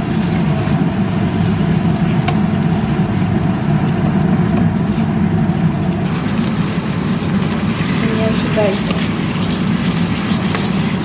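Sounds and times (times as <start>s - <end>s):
meat sizzling in a pan: 6.0s - 11.0s.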